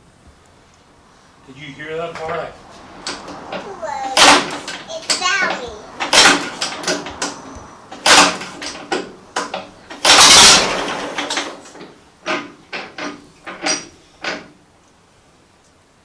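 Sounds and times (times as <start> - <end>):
tractor engine backfiring bangs: 2.0 - 14.6.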